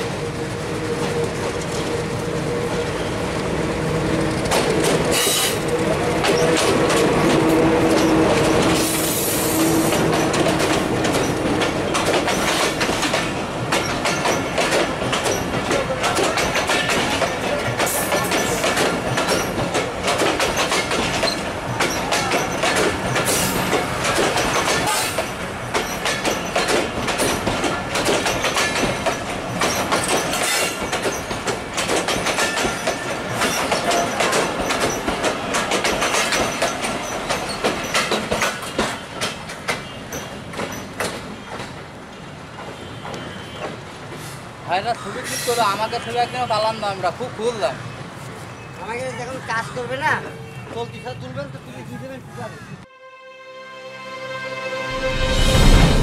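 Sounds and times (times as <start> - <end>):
train wheels clattering on rails: 0.0 - 44.4.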